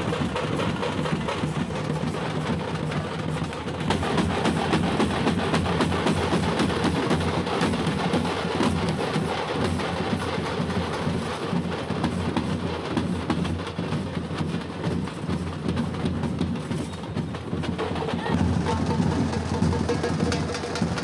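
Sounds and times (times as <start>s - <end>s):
frame drums beaten with sticks: 0.0s - 21.0s.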